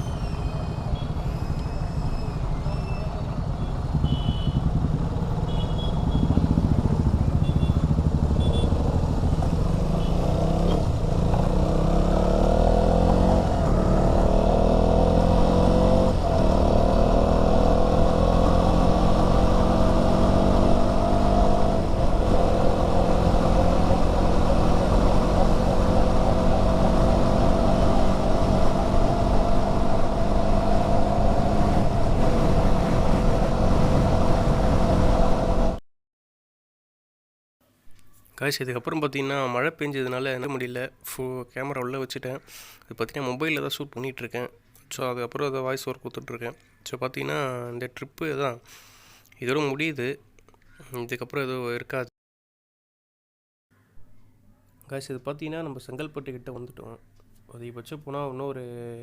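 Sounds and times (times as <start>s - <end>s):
motorcycle engine accelerating: 0.0s - 35.8s
wind and road noise: 0.0s - 35.8s.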